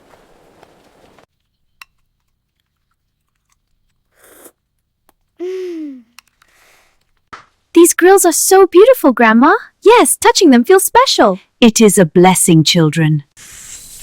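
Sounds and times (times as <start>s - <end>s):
breathy sigh-like voice: 5.4s - 7.0s.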